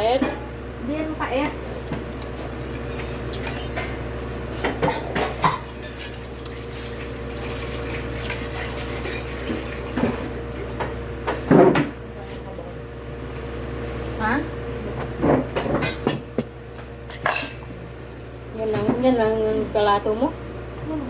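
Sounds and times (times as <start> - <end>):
cutlery clinking on plates: 2.2 - 4.0, 17.1 - 17.6.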